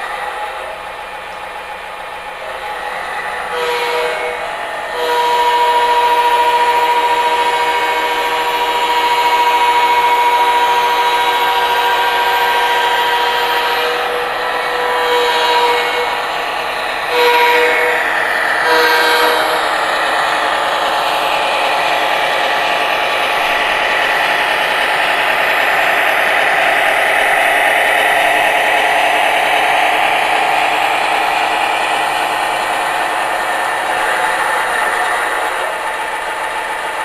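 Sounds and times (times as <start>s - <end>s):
diesel air horn: 3.4s - 20.4s.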